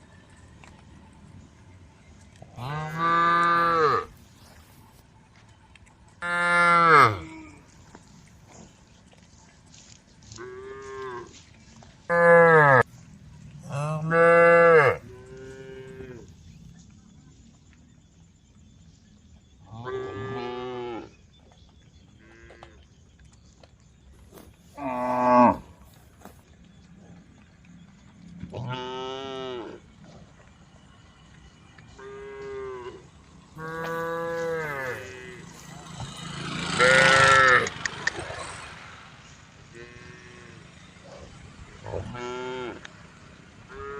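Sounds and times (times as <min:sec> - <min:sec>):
cows mooing: 0:02.5 - 0:04.2, 0:06.2 - 0:07.6, 0:12.1 - 0:12.8, 0:13.6 - 0:16.3, 0:24.8 - 0:26.0, 0:28.5 - 0:29.9, 0:31.9 - 0:38.6, 0:39.6 - 0:43.0, 0:43.6 - 0:43.9.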